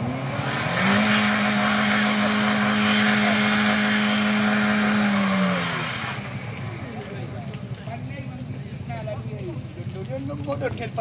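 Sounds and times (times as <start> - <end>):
car engine revving high: 0.0 - 7.0
spinning tyre hissing: 0.0 - 7.4.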